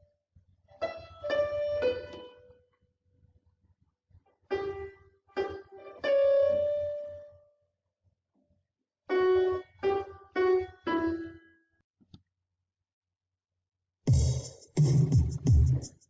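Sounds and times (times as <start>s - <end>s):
electronic keyboard notes: 0.8s - 2.6s, 4.5s - 7.4s, 9.1s - 11.4s.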